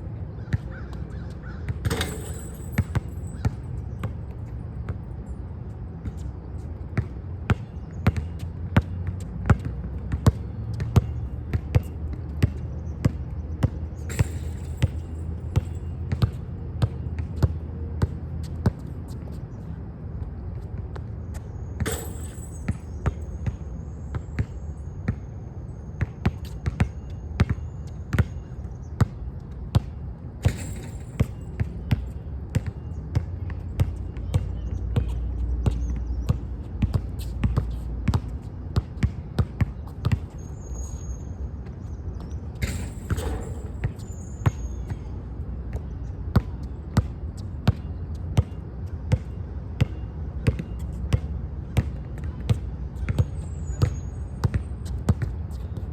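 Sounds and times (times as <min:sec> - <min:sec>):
basketball bouncing on court: 0:00.5 - 0:05.1, 0:07.0 - 0:18.8, 0:21.8 - 0:25.3, 0:26.0 - 0:40.7, 0:42.2 - 0:55.8.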